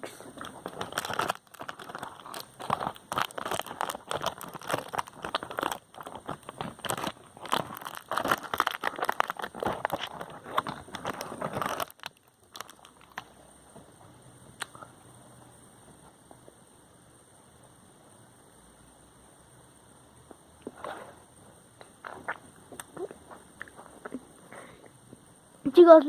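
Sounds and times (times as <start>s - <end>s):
plastic wrapper crinkling: 0.4s - 13.3s.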